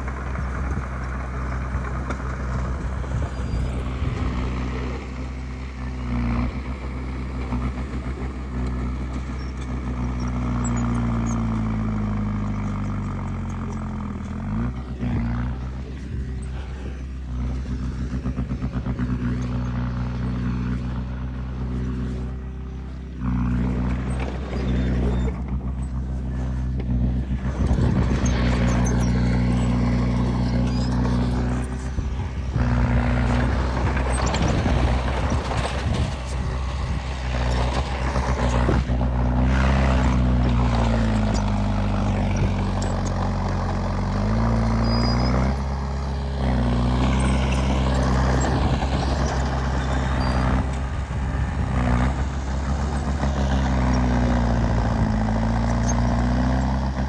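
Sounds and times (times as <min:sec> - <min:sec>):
diesel engine running under load: 0:00.0 - 0:57.0
noisy clatter: 0:22.9 - 0:45.6.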